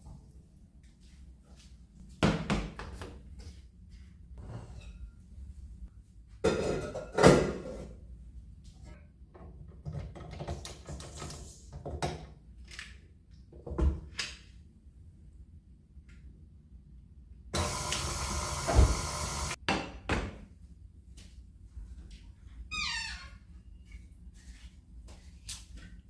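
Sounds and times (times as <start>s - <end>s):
objects knocking and clattering: 6.4s - 7.9s.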